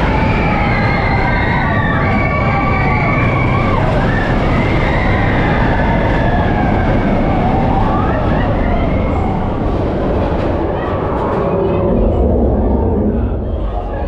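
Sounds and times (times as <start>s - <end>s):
riders screaming: 0.0s - 9.7s
roller coaster rumble: 0.0s - 14.0s.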